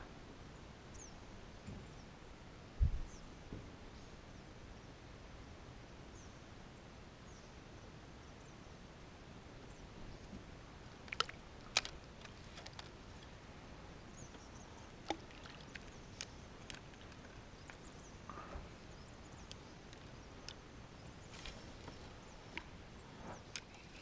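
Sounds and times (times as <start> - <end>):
open water ambience: 5.7 - 24.0.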